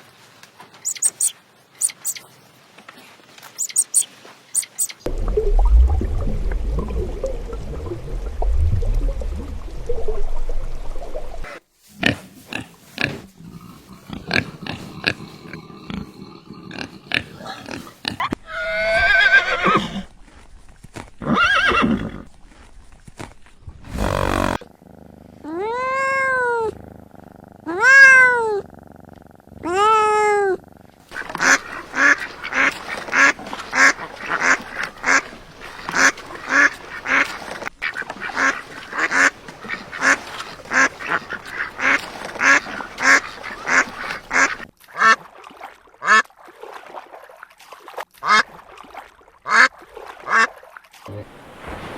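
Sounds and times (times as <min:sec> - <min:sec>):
animal calls: 0:00.8 - 0:02.2, 0:03.6 - 0:05.0, 0:23.9 - 0:24.6
drawn-out rising and falling calls: 0:00.8 - 0:02.2, 0:03.5 - 0:05.0
duck quacking: 0:31.1 - 0:35.3, 0:35.9 - 0:45.2.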